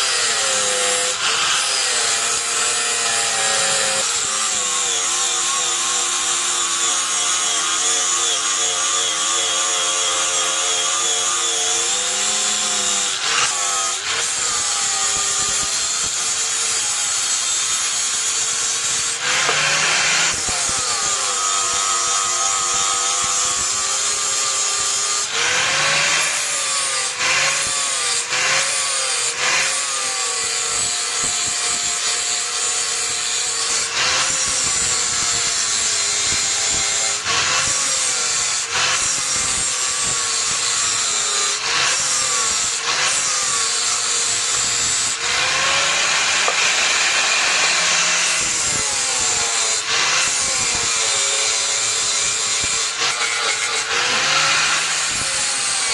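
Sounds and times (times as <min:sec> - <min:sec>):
electric grinder grinding steel: 0:00.0 - 0:55.9.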